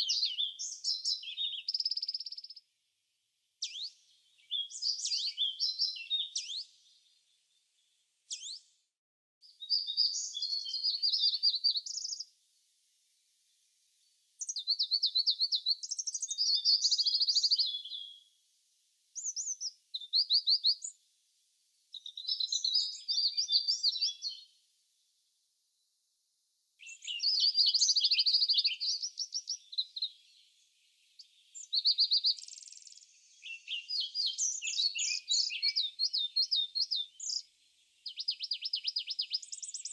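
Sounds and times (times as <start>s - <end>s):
songbird trilling: 31.6s - 37.4s.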